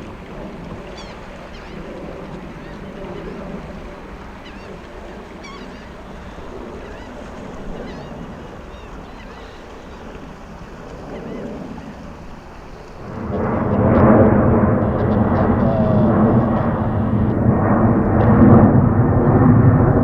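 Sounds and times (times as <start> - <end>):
jet airliner engine roar: 0.0 - 20.0.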